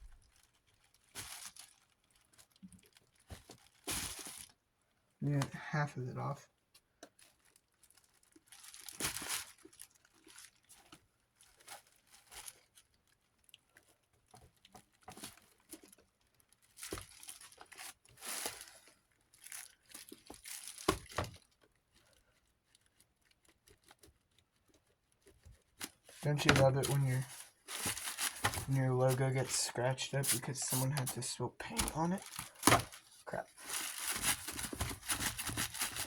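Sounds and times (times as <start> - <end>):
crinkling: 0.0 - 4.7, 6.9 - 36.0
scratchy rubbing and scraping: 26.1 - 36.0.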